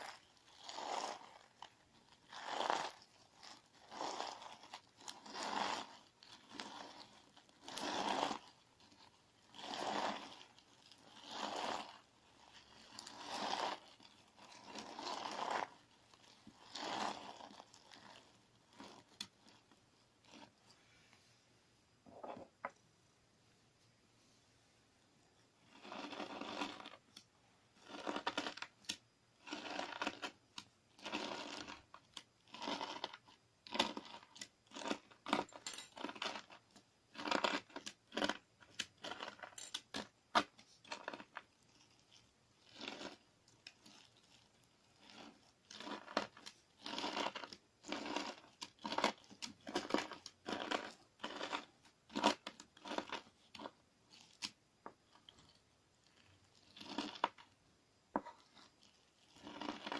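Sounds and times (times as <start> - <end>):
slime crackling with spoon: 25.8 - 57.5.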